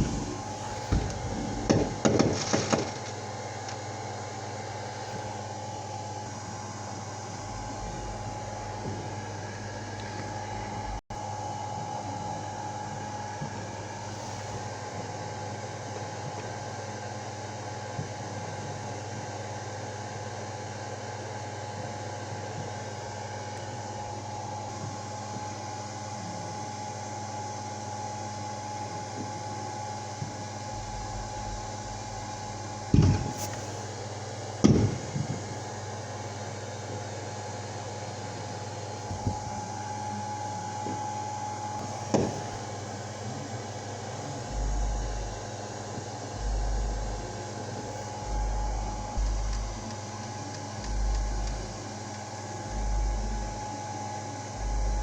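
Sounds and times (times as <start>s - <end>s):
low rumbling bumps: 0.0s - 3.0s, 7.2s - 11.0s, 30.7s - 33.6s, 44.4s - 45.4s, 46.3s - 49.9s, 50.8s - 51.8s
fireworks banging: 0.0s - 3.2s
steady tonal hum: 0.0s - 17.2s, 22.8s - 55.0s.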